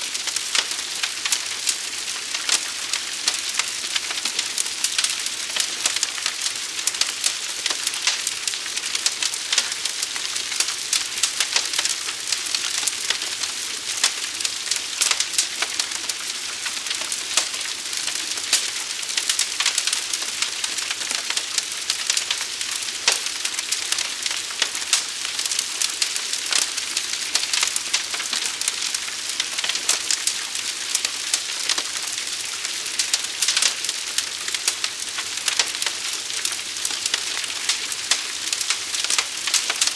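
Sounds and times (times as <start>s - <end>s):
fire crackling and snapping: 0.0s - 39.9s.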